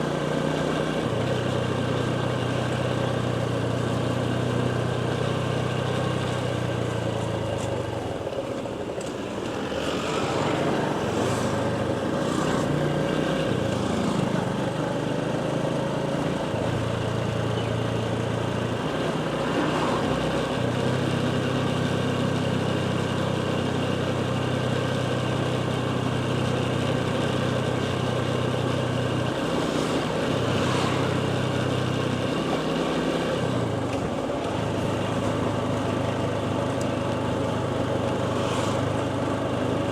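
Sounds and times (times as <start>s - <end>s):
motorcycle engine running: 0.0s - 39.9s
steady rushing noise: 9.3s - 13.0s, 29.4s - 31.9s.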